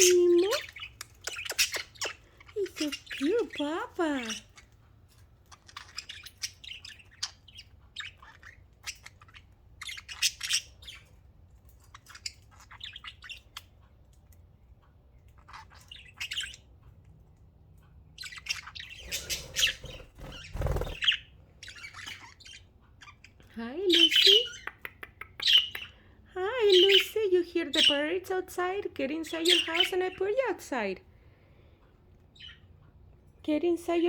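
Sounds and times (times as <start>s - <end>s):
budgerigars chirping and squawking: 0.0s - 33.0s.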